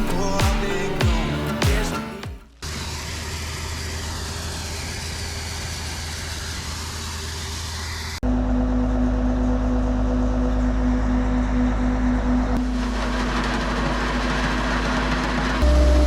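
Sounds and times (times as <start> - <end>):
feed mill grinding grain: 12.6 - 16.0.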